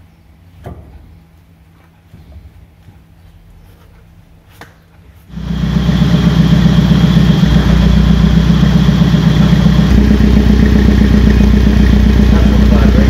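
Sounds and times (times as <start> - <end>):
car engine running: 5.3 - 13.0.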